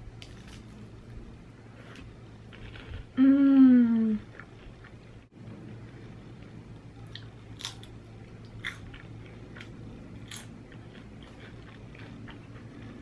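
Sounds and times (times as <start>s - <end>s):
crunchy chewing: 7.1s - 13.0s.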